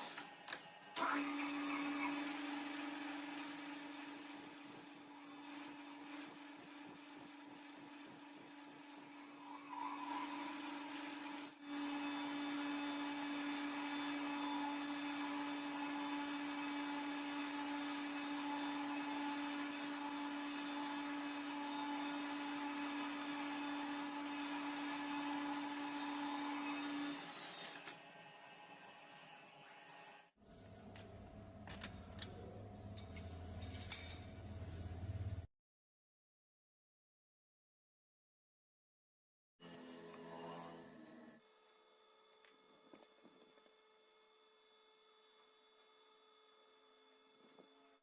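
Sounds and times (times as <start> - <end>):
machine tool motor humming: 0.0 - 32.4.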